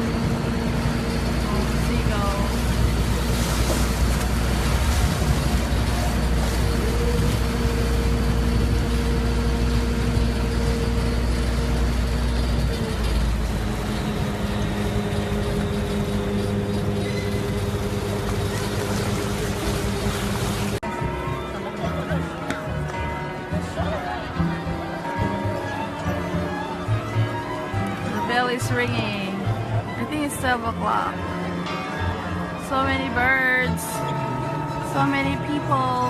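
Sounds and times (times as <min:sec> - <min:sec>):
boat engine rumbling: 0:00.0 - 0:36.0.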